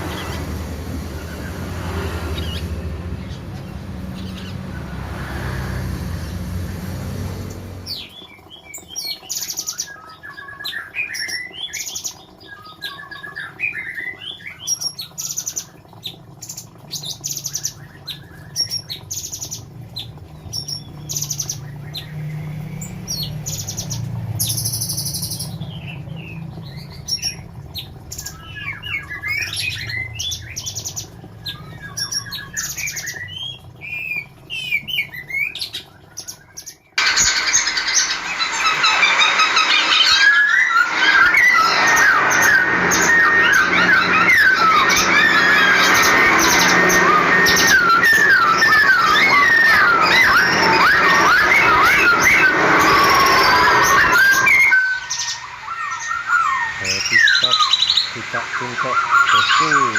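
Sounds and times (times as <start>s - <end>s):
songbird chirping and twittering: 17.0s - 59.9s
low rumbling noise: 37.0s - 59.9s.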